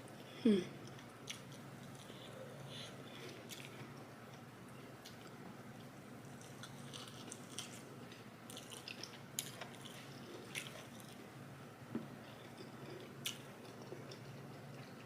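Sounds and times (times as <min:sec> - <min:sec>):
person chewing: 0:00.8 - 0:04.4, 0:05.0 - 0:07.8, 0:08.5 - 0:11.2, 0:12.4 - 0:15.0.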